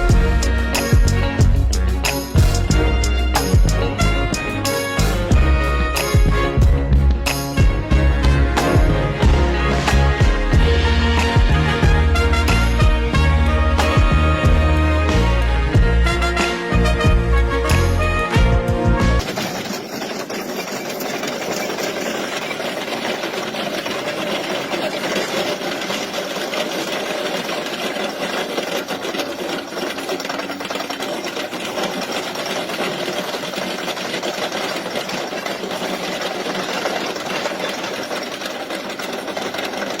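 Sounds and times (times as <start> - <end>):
machine rattling: 0.0 - 7.6, 19.2 - 40.0.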